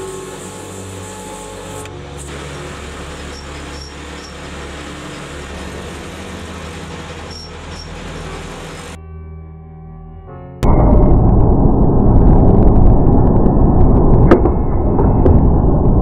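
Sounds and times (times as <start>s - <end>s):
forge burner and blower rushing: 0.0s - 9.0s.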